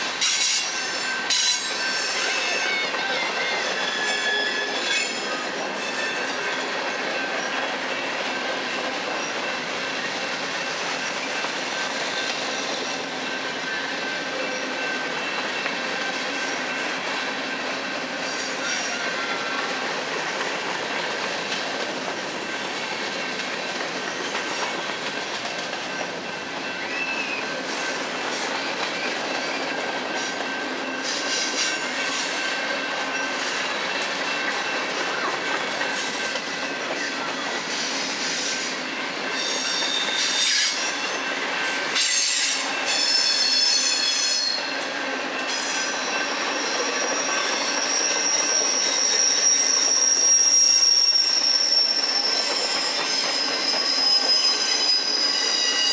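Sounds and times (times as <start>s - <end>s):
freight train cars rumbling: 0.0s - 55.9s
high-pitched wheel squeal: 0.2s - 6.6s, 39.3s - 41.3s, 42.0s - 44.8s, 45.4s - 55.9s.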